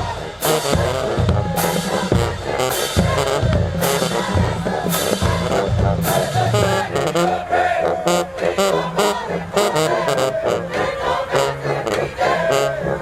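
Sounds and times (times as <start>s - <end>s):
pounding bass drums: 0.0s - 7.2s
marching band brass: 0.0s - 13.0s.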